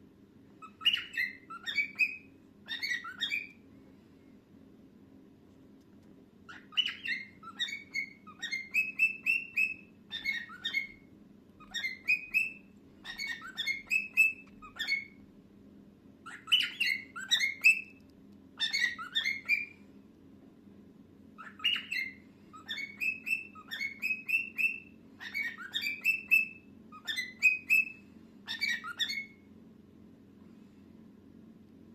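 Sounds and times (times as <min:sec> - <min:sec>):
cockatiel chirping and whistling: 0:00.6 - 0:03.6, 0:06.5 - 0:15.2, 0:16.2 - 0:18.0, 0:18.6 - 0:19.8, 0:21.4 - 0:29.5.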